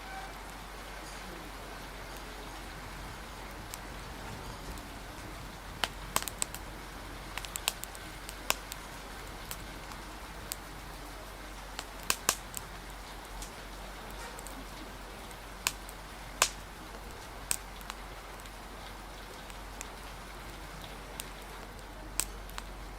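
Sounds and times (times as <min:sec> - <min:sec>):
rain hiss: 0:00.0 - 0:22.9
wind: 0:00.0 - 0:22.9
wood fire crackling: 0:00.0 - 0:22.9.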